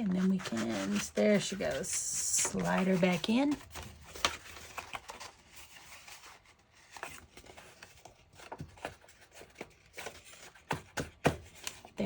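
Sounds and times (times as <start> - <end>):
card rubbing into paper sleeve: 0.0 - 6.4.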